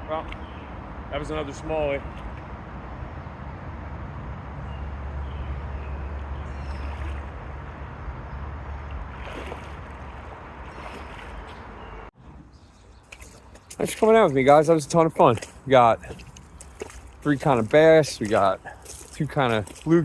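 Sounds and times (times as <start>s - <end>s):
creek water rushing: 5.6s - 12.0s, 13.1s - 20.0s.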